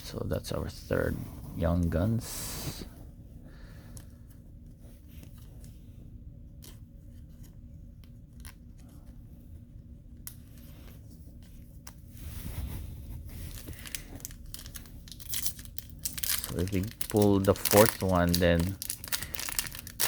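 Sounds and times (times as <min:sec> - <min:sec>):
faint steady hum: 0:00.0 - 0:20.0
wrapper rustling: 0:13.1 - 0:20.0.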